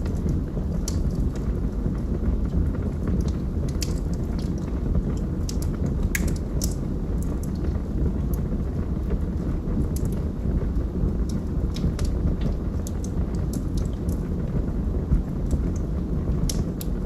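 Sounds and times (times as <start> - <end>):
fire crackles and pops: 0.0 - 17.0
fire rumbling in fireplace: 0.0 - 17.0.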